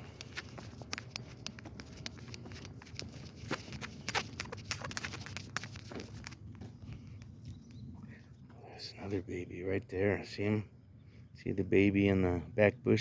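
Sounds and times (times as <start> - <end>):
footsteps crunching on path: 0.0 - 7.0.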